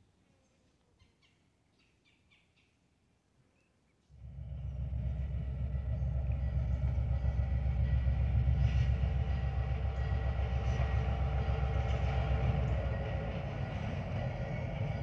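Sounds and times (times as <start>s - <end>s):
diesel locomotive engine rumble: 4.2s - 15.0s.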